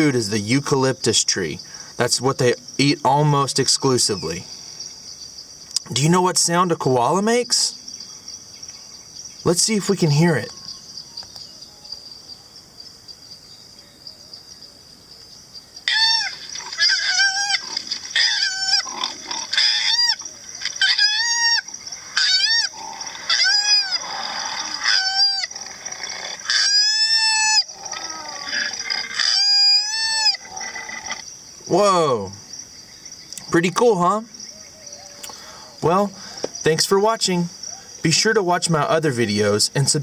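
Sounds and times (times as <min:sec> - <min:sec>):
insect chorus: 0:00.0 - 0:40.0
koala calls: 0:15.8 - 0:31.2.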